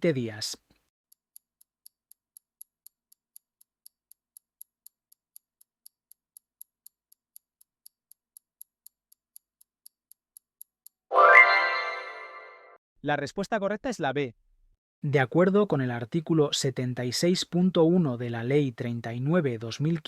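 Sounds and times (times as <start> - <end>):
countdown timer ticking: 11.1 - 12.5.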